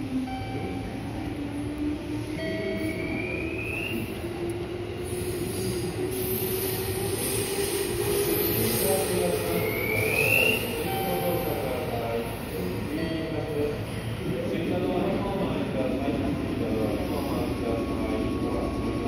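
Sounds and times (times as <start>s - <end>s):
steady train rumble: 0.0s - 19.0s
train whine rising in pitch: 0.8s - 11.5s.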